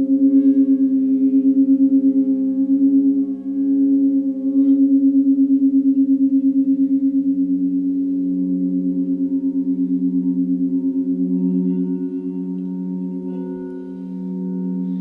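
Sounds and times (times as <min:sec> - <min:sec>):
singing bowls ringing: 0:00.0 - 0:15.0
singing bowl strike: 0:08.4 - 0:15.0.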